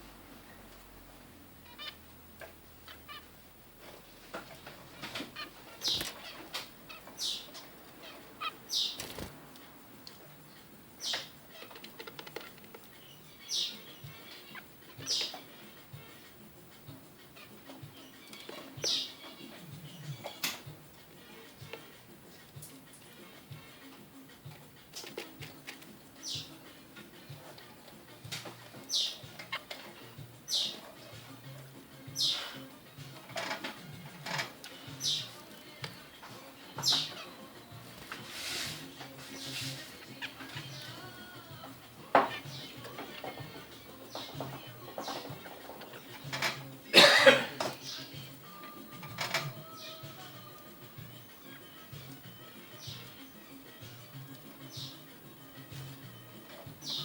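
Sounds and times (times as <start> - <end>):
finches chirping: 0.5 - 57.0
wing flutters: 5.0 - 9.6
finch calls sweeping downward: 5.4 - 9.3.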